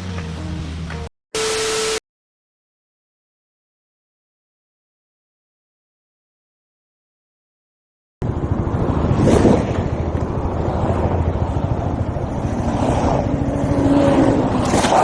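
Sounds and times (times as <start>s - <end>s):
wind on microphone: 8.2s - 15.0s.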